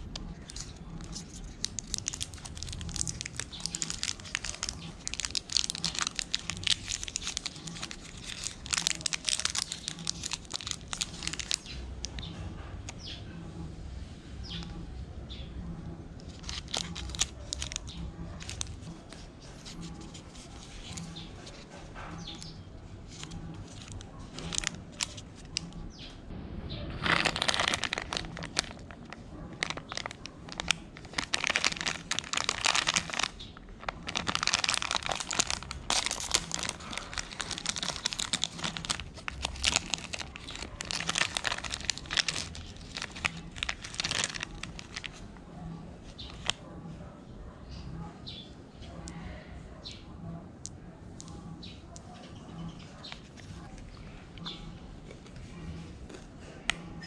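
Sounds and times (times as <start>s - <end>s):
snack wrapper crinkling: 0.0s - 12.3s, 16.2s - 21.6s, 23.1s - 25.9s, 27.0s - 45.3s, 46.1s - 46.6s.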